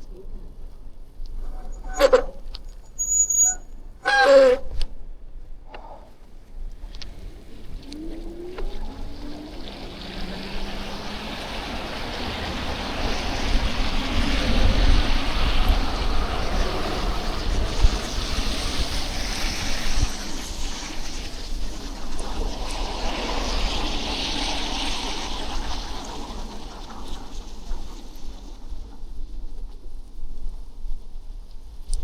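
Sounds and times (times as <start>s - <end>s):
wind rumbling on microphone: 0.0s - 32.0s
tyres of passing vehicles: 5.1s - 29.2s.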